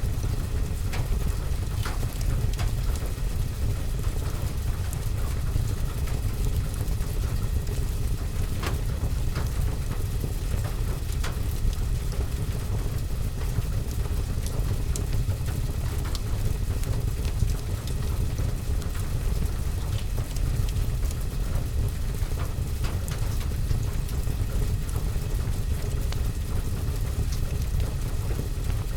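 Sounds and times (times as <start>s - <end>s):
rain on roof and window: 0.0s - 28.9s
wood fire crackling and popping: 0.1s - 5.2s, 6.0s - 28.9s.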